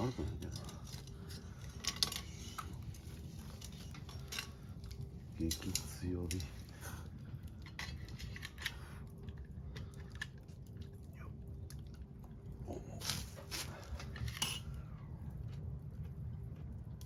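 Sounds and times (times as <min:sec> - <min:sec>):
person chewing crunchy food: 0:07.0 - 0:17.0.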